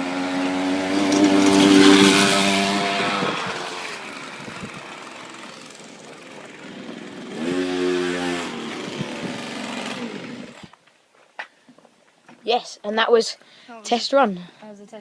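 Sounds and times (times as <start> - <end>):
two-stroke engine revving: 0.0 - 10.8.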